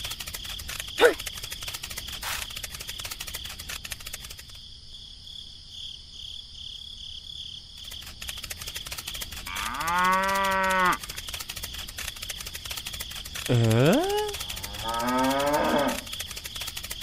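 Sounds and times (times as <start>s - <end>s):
cow mooing: 9.5s - 11.0s, 14.6s - 16.0s.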